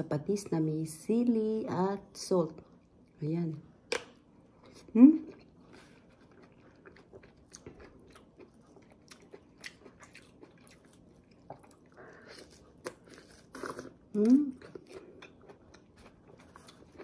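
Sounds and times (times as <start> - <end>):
chewing and biting juicy fruit: 3.9 - 17.0.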